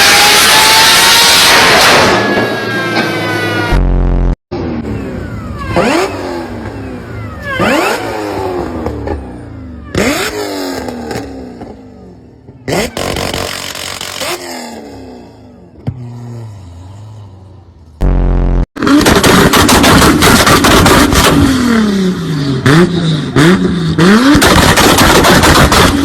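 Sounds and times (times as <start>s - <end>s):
engine revving: 0.0s - 26.0s.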